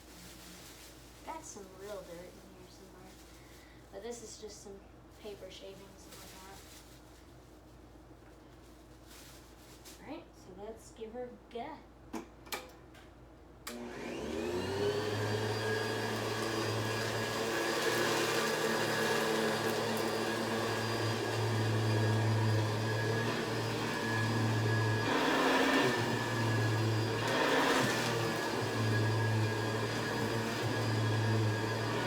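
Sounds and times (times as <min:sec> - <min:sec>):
vacuum cleaner running over carpet: 0:13.7 - 0:32.0.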